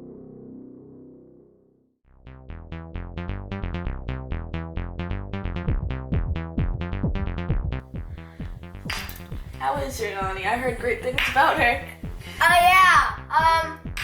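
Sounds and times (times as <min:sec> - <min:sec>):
bass line: 0:02.1 - 0:14.0.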